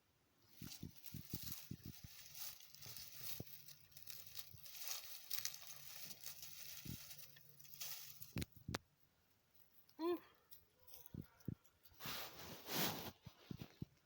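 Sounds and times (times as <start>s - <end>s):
cat scrabbling and scratching: 0.5s - 8.8s.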